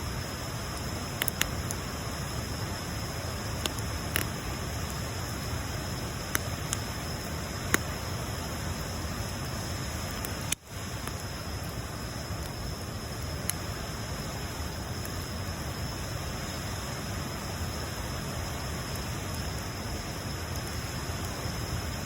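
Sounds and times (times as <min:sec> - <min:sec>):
bonfire hissing: 0:00.0 - 0:22.0
wood crackling pops: 0:01.2 - 0:01.8, 0:03.6 - 0:04.4.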